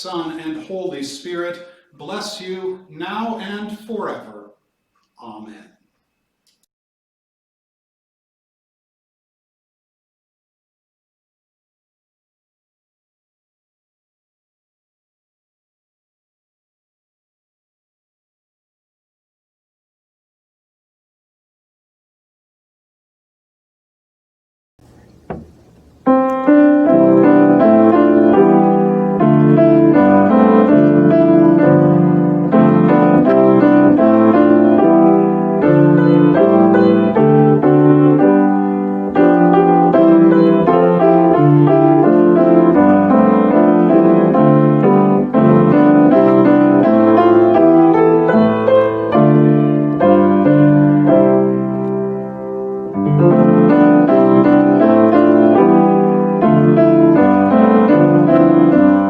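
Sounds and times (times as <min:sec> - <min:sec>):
piano playing slow chords: 0:24.8 - 0:59.0.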